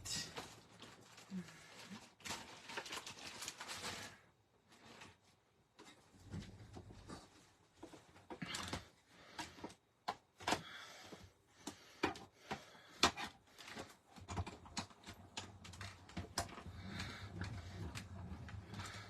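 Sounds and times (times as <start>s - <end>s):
plastic plates clicking and tapping: 11.6s - 19.0s.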